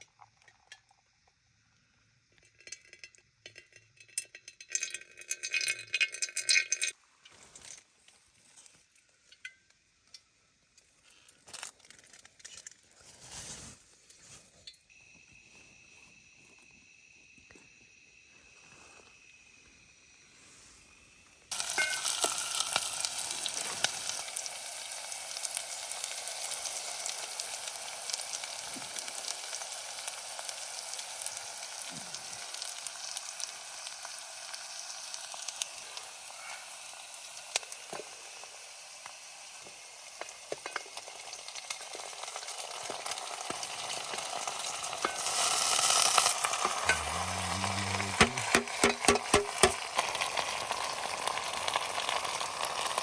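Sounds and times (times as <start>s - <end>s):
food frying in hot oil: 0.0s - 7.0s, 21.4s - 53.0s.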